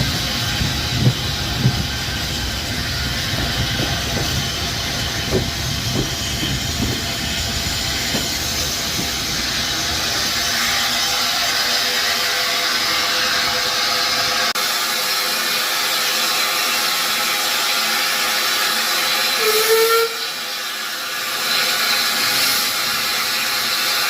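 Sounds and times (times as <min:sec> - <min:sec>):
train wheels knocking: 0:00.0 - 0:11.4
train rumbling on rails: 0:00.0 - 0:24.0.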